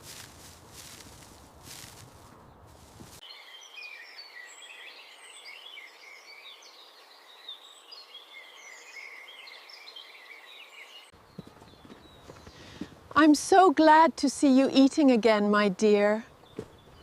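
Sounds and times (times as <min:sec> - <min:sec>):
low rustling: 0:00.0 - 0:03.2
small birds chirping: 0:00.0 - 0:13.3, 0:14.7 - 0:17.0.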